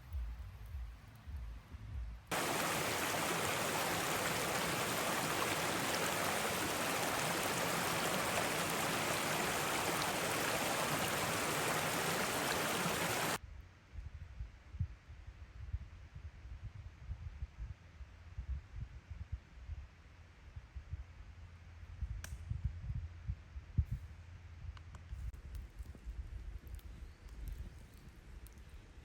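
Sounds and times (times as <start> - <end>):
rush of flowing water: 2.3 - 13.4.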